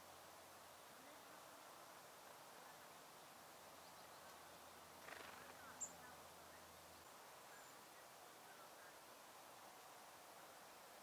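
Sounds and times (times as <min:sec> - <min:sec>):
faint outdoor hiss: 0:00.0 - 0:11.0
songbird chirp: 0:02.4 - 0:11.0.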